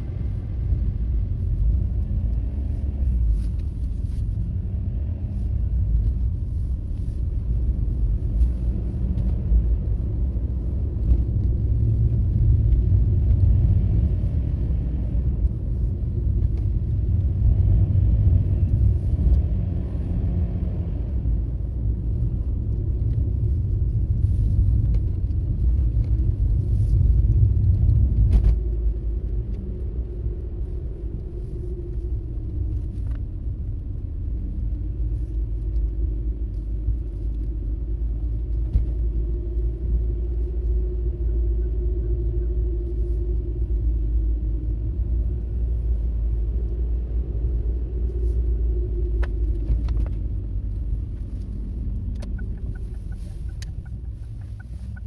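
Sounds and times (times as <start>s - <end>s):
car engine and tyres rumbling: 0.0s - 55.0s.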